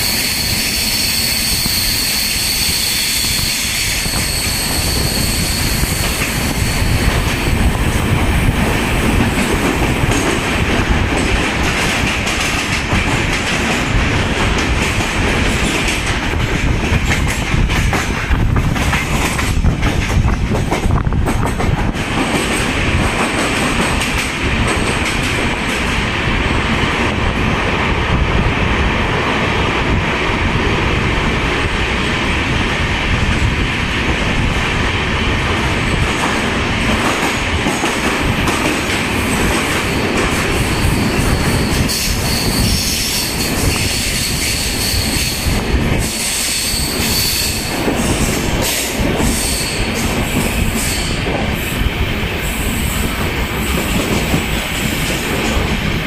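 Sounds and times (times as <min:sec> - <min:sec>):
high wheel squeal: 0:00.0 - 0:07.1, 0:39.8 - 0:47.7, 0:49.2 - 0:51.2
train wheels rumbling on rail: 0:00.0 - 0:56.0.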